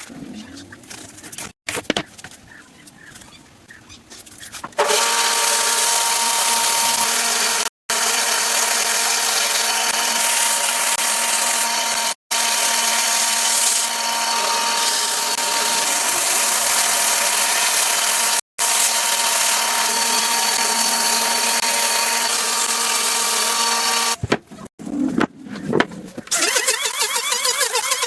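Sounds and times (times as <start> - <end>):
electric power tool running: 4.8 - 24.2.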